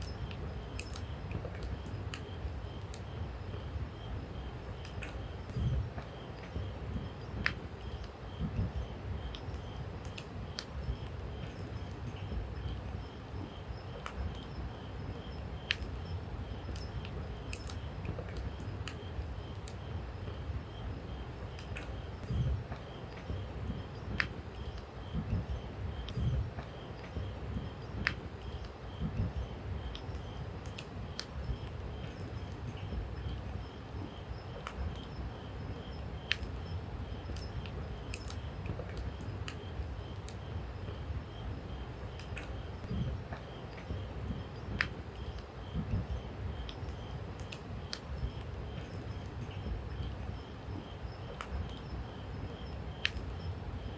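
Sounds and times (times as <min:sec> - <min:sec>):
faint insect chirping: 0:00.0 - 0:53.9
low rumble of burning fire: 0:00.0 - 0:53.9
campfire rumble: 0:36.1 - 0:53.2.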